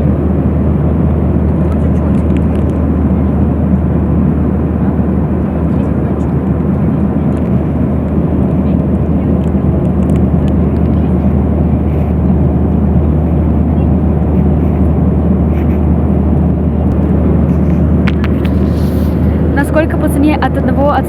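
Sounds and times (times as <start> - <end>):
airliner cabin engine and airflow noise: 0.0 - 21.0.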